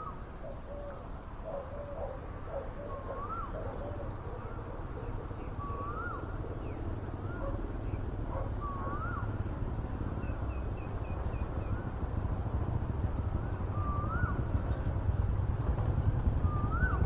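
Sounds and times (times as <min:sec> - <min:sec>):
low coo-like bird notes: 0:00.0 - 0:09.6, 0:13.2 - 0:14.9, 0:16.4 - 0:17.0
low steady rumble: 0:03.3 - 0:17.0.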